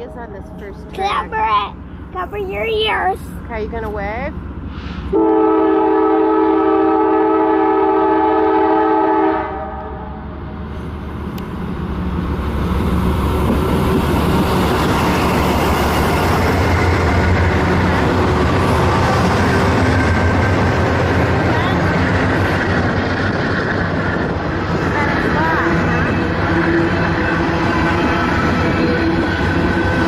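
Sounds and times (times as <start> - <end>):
train wheels rumbling on rails: 0.0 - 8.6, 9.3 - 30.0
train horn chord: 5.1 - 10.2.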